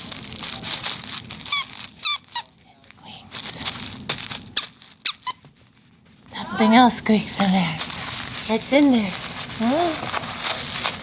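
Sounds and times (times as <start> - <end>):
wrapping paper rustling: 0.0 - 11.0
squeaky toy squeaking: 1.4 - 2.5, 4.6 - 5.5.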